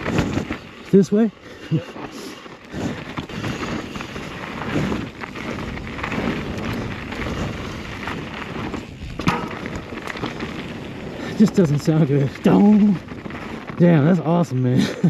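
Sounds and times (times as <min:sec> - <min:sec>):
bike tyres rumbling on dirt: 0:00.0 - 0:15.0
bike knocks and rattles: 0:02.7 - 0:14.0.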